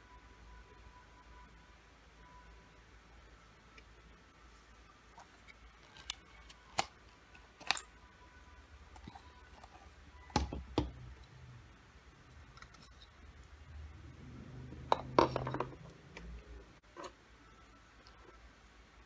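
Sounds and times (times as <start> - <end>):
packaging clicks and snaps: 5.2 - 7.9, 9.0 - 11.3.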